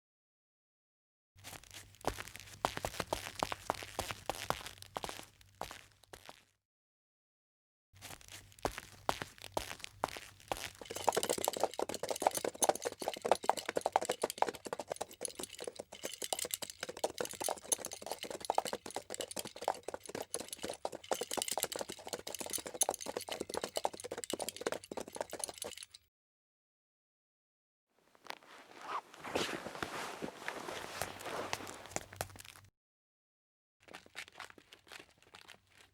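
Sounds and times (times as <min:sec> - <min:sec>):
footsteps crunching: 0:28.2 - 0:32.6.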